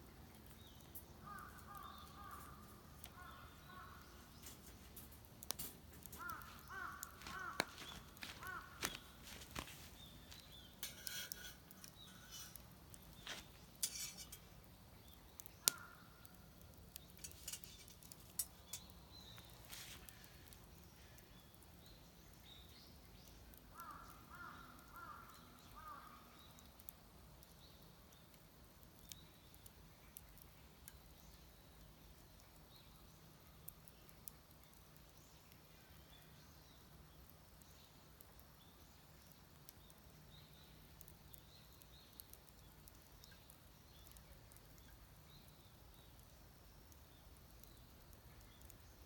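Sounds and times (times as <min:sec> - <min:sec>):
distant crow cawing: 0:01.2 - 0:04.2, 0:06.1 - 0:09.6, 0:15.6 - 0:16.1, 0:23.7 - 0:26.2.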